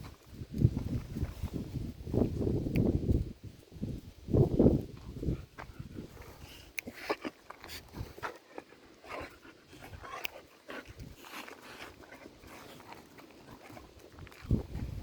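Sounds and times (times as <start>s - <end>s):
dogs panting and scuffling: 4.8s - 15.0s.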